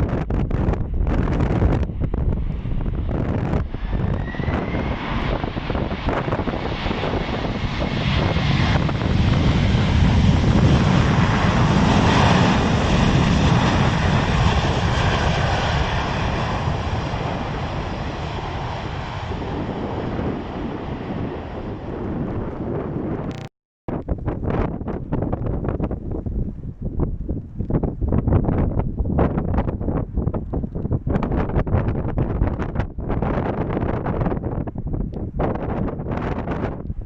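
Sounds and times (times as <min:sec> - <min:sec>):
jet engines of landing airliner: 0:00.0 - 0:23.4.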